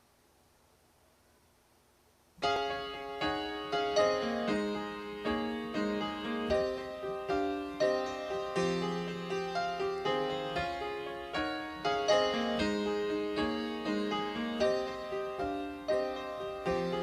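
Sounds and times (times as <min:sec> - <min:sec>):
slow piano notes and chords: 0:02.4 - 0:17.0.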